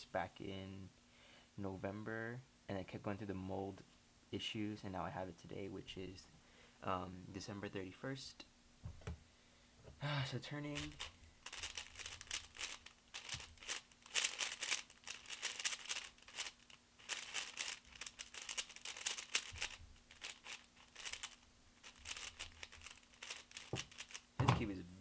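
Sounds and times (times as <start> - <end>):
speed cube turning clicks: 10.8 - 24.3.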